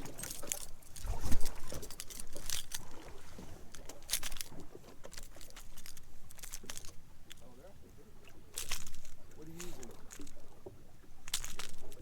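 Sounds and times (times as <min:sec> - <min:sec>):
water splashes: 0:00.0 - 0:05.6
wind on microphone: 0:01.0 - 0:01.9.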